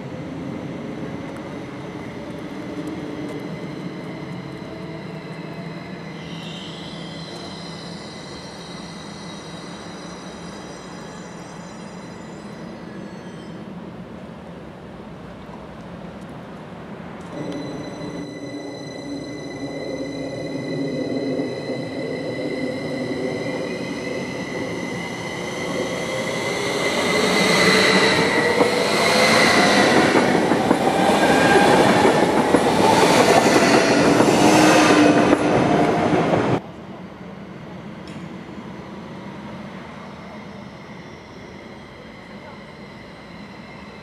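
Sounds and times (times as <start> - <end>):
station background: 16.8 - 38.0
steady high tones: 17.3 - 36.6.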